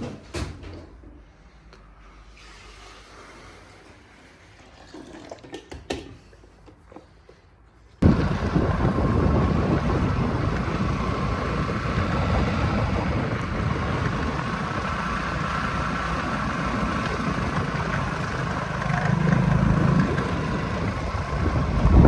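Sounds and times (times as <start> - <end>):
vehicle engine rumbling: 8.0 - 22.0.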